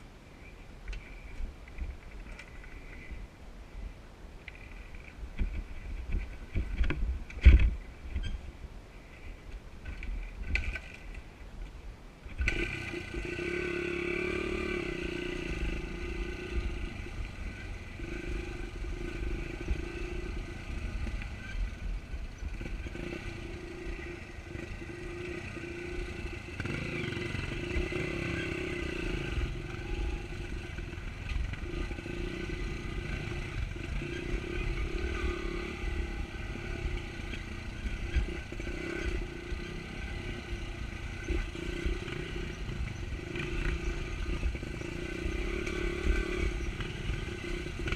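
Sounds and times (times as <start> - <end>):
wind rumble on microphone: 0.8 - 28.2.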